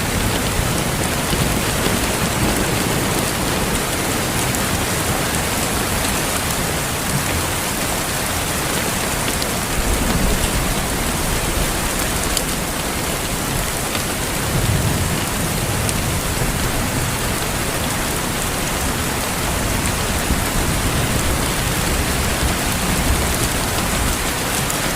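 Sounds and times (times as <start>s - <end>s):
heavy rain on hard surfaces: 0.0s - 24.9s.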